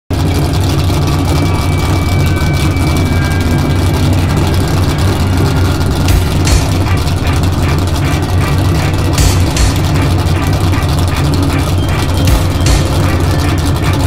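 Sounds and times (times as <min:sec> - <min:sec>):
car engine idling: 0:00.1 - 0:14.0.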